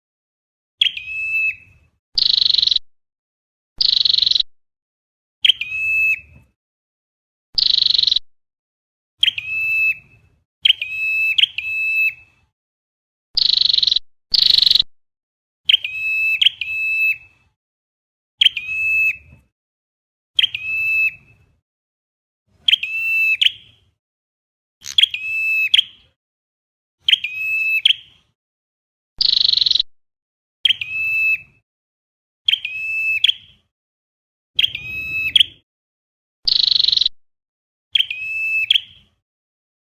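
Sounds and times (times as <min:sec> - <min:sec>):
sharp high bird calls: 0:00.8 - 0:02.8, 0:03.8 - 0:04.5, 0:05.4 - 0:06.3, 0:07.6 - 0:08.2, 0:09.2 - 0:12.3, 0:13.4 - 0:14.8, 0:15.7 - 0:17.4, 0:18.4 - 0:19.3, 0:20.4 - 0:21.3, 0:22.6 - 0:23.7, 0:24.8 - 0:26.1, 0:27.0 - 0:28.1, 0:29.2 - 0:29.9, 0:30.6 - 0:31.6, 0:32.5 - 0:33.6, 0:34.6 - 0:35.6, 0:36.5 - 0:37.2, 0:37.9 - 0:39.1.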